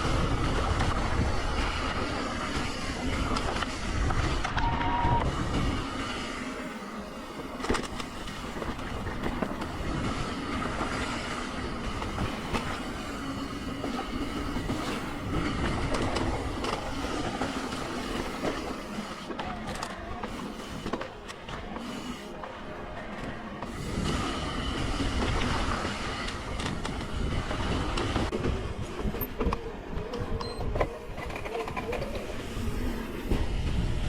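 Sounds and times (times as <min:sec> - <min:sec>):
wind buffeting microphone: 0:00.0 - 0:06.2, 0:23.8 - 0:34.0.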